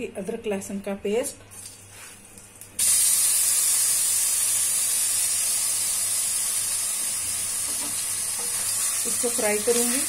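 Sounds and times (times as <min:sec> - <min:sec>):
paste sizzling in hot oil: 0:02.8 - 0:10.0.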